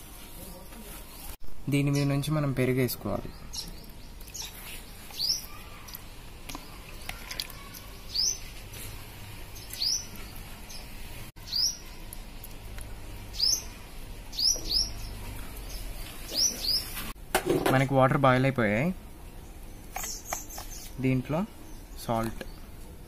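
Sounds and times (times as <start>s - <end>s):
bird chirping: 3.2s - 8.5s, 9.6s - 12.0s, 13.3s - 17.0s, 19.4s - 22.8s.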